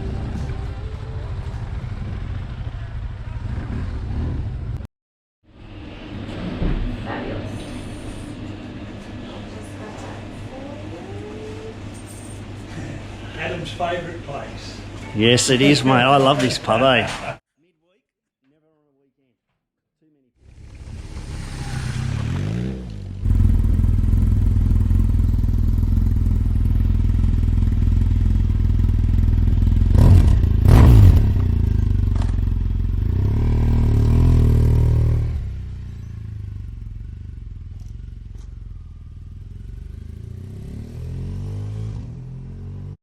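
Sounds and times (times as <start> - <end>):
motorcycle engine running: 0.0 - 4.8, 20.4 - 43.0.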